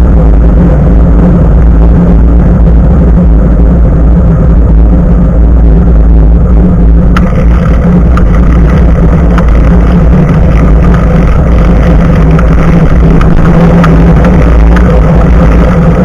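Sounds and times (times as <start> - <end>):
bicycle tyre rumble on road: 0.0 - 16.0
steady hum: 0.0 - 16.0
wind buffeting microphone: 0.0 - 16.0
small rattles: 7.2 - 16.0.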